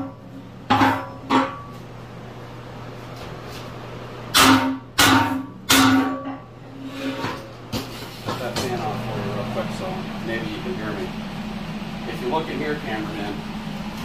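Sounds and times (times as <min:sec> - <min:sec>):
steady low hum: 0:00.0 - 0:14.0
hammer striking steel: 0:04.3 - 0:06.4.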